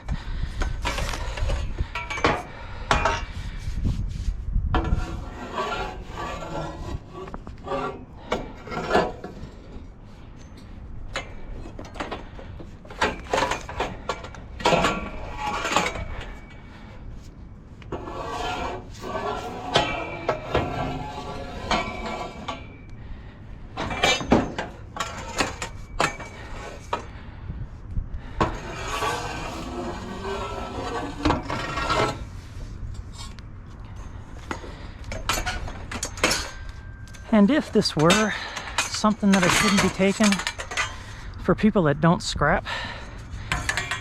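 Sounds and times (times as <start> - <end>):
metal scraping: 0.0 - 27.3, 28.2 - 41.9
metal scrap clanking: 10.6 - 16.7, 18.0 - 22.9, 23.8 - 27.1, 28.4 - 32.3, 34.1 - 41.2.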